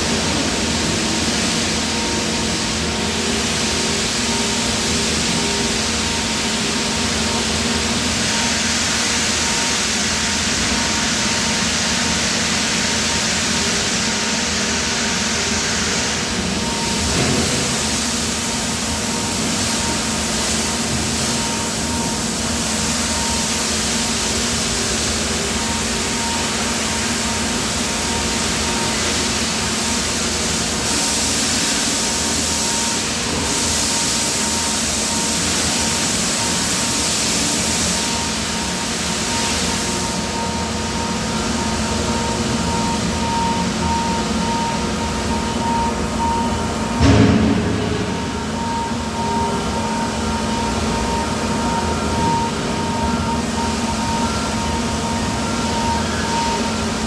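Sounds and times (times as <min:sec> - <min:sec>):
factory machinery hiss and whine: 0:00.0 - 0:57.0
loud machine clunk: 0:16.7 - 0:18.0, 0:44.4 - 0:53.1.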